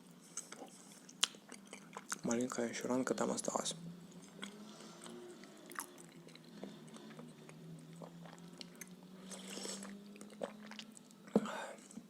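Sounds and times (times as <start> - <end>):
close chewing with mouth clicks: 0.2 - 2.3, 4.1 - 12.0
low hum: 2.4 - 12.0.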